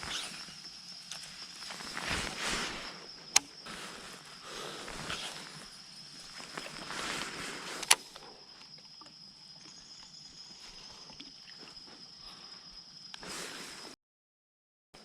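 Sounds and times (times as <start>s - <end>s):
insect chirring: 0.0s - 13.9s
sharp click: 7.8s - 8.1s.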